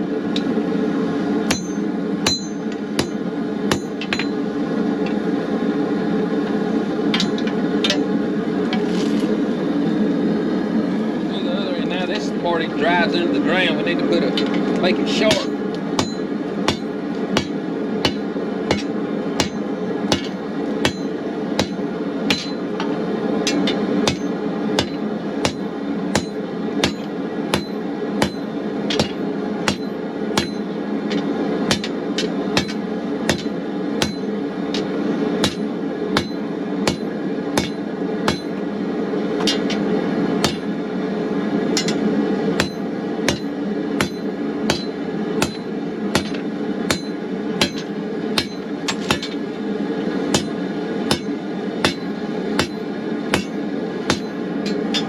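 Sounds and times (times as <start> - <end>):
gas forge roaring: 0.0 - 55.0
hammer striking steel on anvil: 1.5 - 4.4, 7.1 - 8.2, 15.2 - 38.6, 39.4 - 40.8, 41.8 - 49.4, 50.3 - 55.0.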